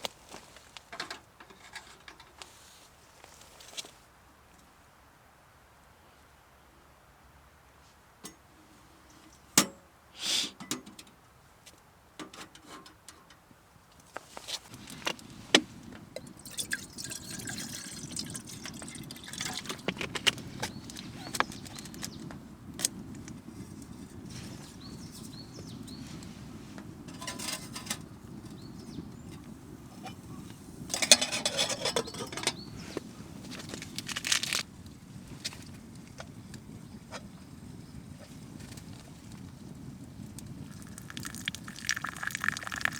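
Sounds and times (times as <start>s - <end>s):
liquid pouring and sloshing: 16.4s - 20.0s, 40.8s - 42.9s.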